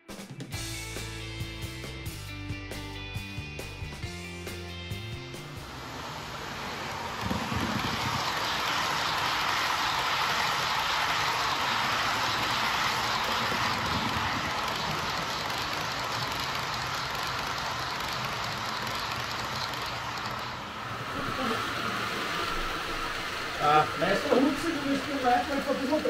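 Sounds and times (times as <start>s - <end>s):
model train wheels rattling on track: 6.0s - 26.0s.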